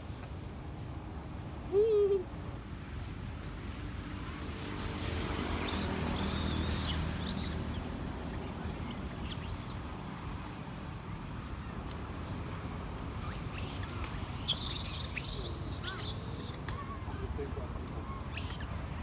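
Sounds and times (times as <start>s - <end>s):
monkeys squeaking: 5.2s - 9.8s, 13.2s - 19.0s.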